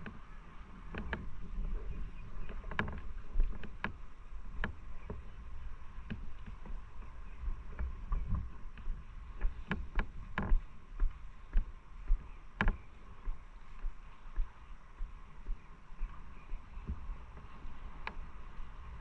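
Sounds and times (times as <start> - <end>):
sharp knocks and clicks: 7.7 - 10.6, 12.6 - 12.8.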